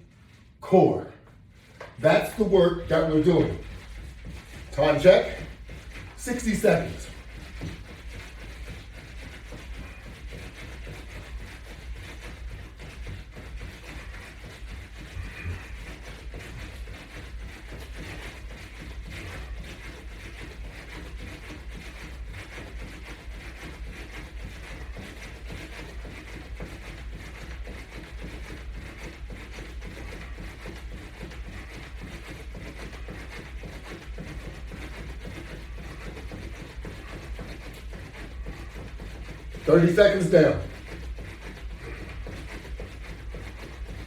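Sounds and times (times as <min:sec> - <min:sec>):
rapid jogging footfalls: 0:00.0 - 0:44.0.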